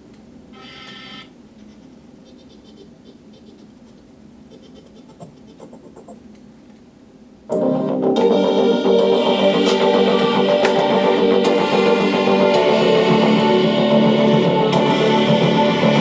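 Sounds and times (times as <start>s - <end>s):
music with heavy bass: 7.5s - 16.0s.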